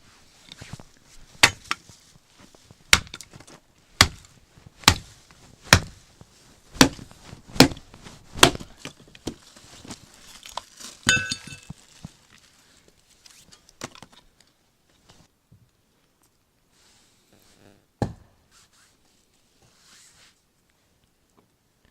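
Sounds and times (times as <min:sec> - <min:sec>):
axe chopping firewood: 0:01.4 - 0:01.8, 0:02.9 - 0:05.1, 0:05.7 - 0:06.0, 0:06.8 - 0:09.4, 0:18.0 - 0:18.2.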